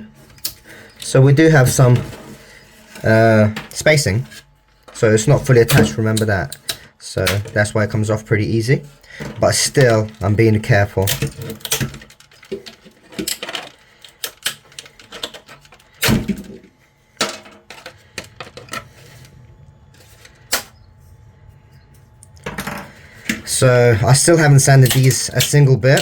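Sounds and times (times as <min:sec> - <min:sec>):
pliers snapping plastic: 0:24.7 - 0:26.0.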